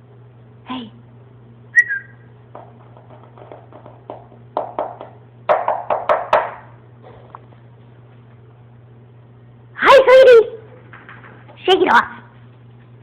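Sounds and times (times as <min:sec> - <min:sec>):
steady low hum: 0:00.0 - 0:13.0
light taps and knocks: 0:02.5 - 0:06.6.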